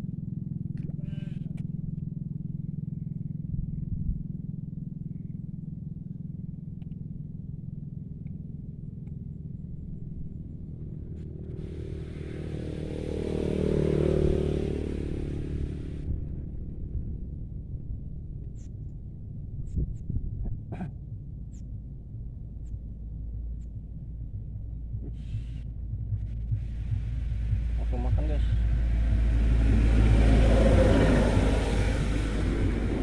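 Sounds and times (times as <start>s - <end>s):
low engine hum: 0.0s - 33.0s
motor vehicle passing by: 9.9s - 18.7s, 25.1s - 33.0s.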